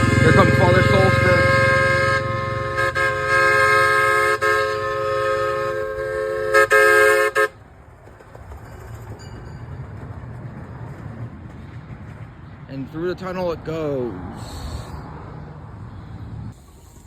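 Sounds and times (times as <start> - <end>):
train whistle chord: 0.0 - 7.5
train running rumble: 0.0 - 13.6.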